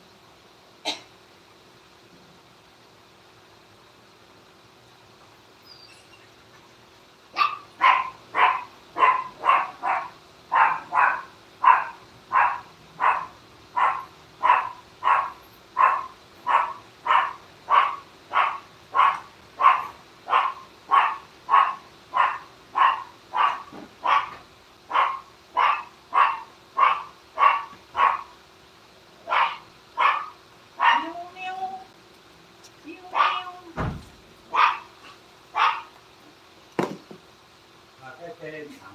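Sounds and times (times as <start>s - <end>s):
dog barking: 7.4s - 28.4s, 29.2s - 31.2s, 33.1s - 33.5s, 34.5s - 35.9s.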